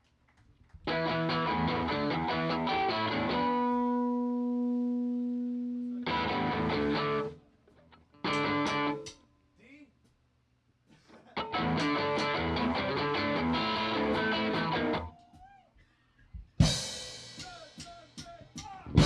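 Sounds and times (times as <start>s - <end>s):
electric guitar playing: 0.9s - 7.4s, 8.0s - 9.1s, 11.4s - 15.1s.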